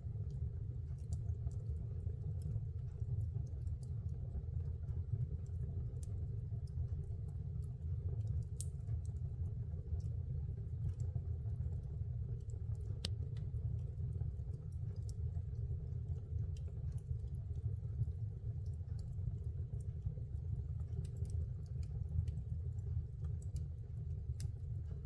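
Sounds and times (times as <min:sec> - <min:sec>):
low fire rumble: 0:00.0 - 0:25.0
wood fire crackling and popping: 0:00.0 - 0:25.0.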